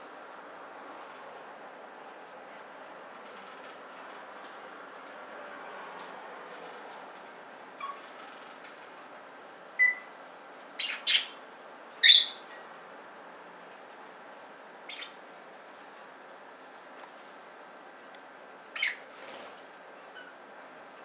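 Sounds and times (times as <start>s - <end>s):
steady background hiss: 0.0s - 21.0s
budgies chirping: 9.8s - 10.1s, 10.8s - 11.4s, 12.0s - 12.5s, 14.9s - 15.2s, 18.8s - 19.1s.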